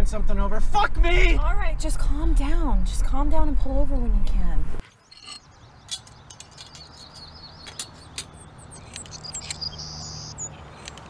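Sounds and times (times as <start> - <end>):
small birds chirping: 4.8 - 11.0.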